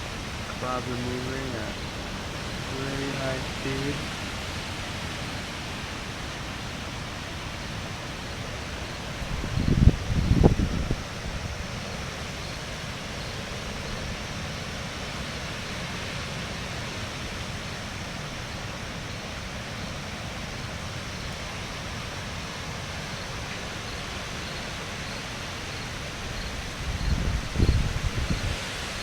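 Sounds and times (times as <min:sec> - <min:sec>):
rain falling: 0:00.0 - 0:18.4
wind buffeting microphone: 0:08.8 - 0:11.7, 0:26.2 - 0:28.9.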